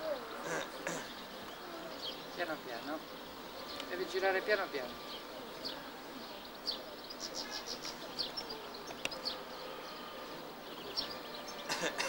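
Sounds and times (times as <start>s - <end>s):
birds chirping: 0.0s - 12.0s
low outdoor hiss: 0.0s - 12.0s.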